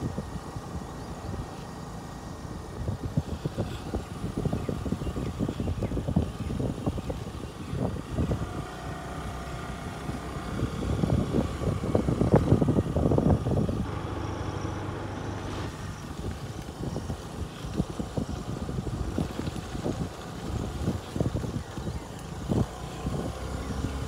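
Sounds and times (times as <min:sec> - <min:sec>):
vehicle engine hum: 0:00.0 - 0:24.0.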